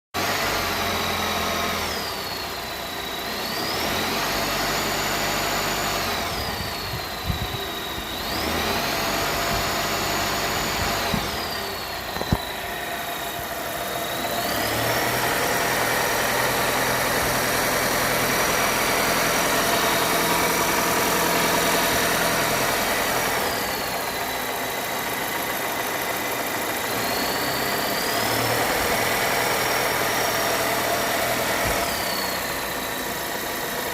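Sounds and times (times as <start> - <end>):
car engine revving: 0.2 - 33.9
high-pitched whistle: 26.9 - 33.1.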